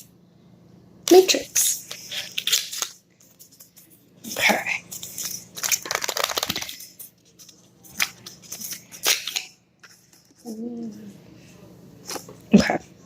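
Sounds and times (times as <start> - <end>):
packaging crackling clicks: 5.2 - 6.9.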